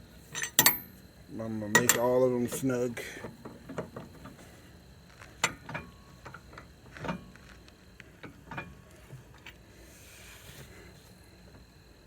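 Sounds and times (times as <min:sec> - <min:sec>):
tire iron clicking on lug nuts: 0:00.4 - 0:00.9, 0:01.7 - 0:02.2.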